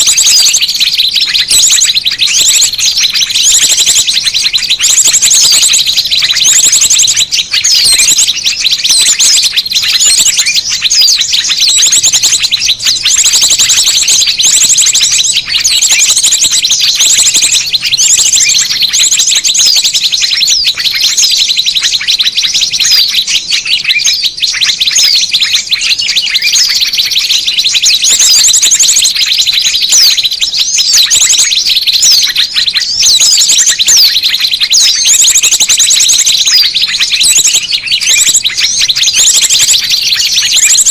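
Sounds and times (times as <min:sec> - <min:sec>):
small birds chirping and twittering: 0:00.0 - 0:40.9.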